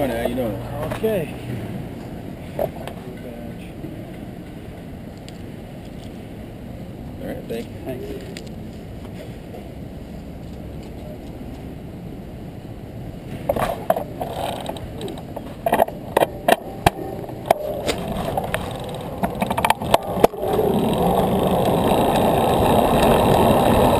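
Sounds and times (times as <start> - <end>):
steady rushing noise: 0.0 - 23.9
bicycle clicks and rattles: 13.5 - 23.9.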